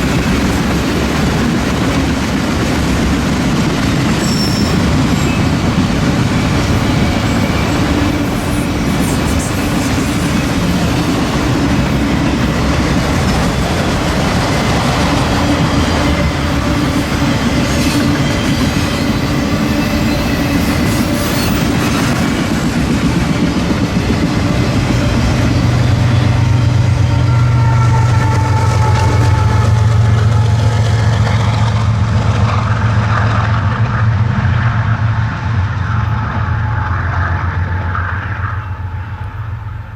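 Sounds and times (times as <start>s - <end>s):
steel wheels clattering over rail joints: 0.0s - 27.0s
deep diesel engine drone: 29.7s - 39.9s.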